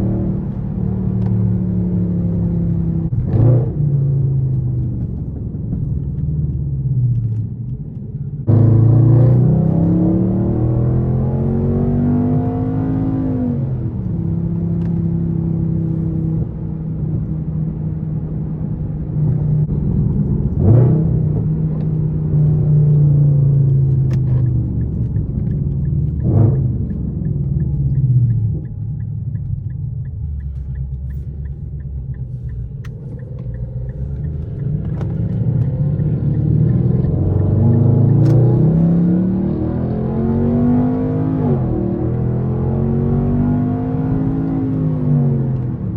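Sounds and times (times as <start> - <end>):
car exhaust drone: 0.0 - 45.9
engine revving: 8.5 - 15.1, 33.0 - 45.9.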